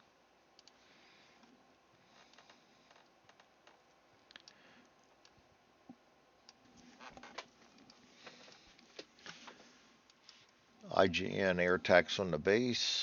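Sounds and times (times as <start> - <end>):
faint clicks and light taps: 0.5 - 0.8, 1.4 - 10.6.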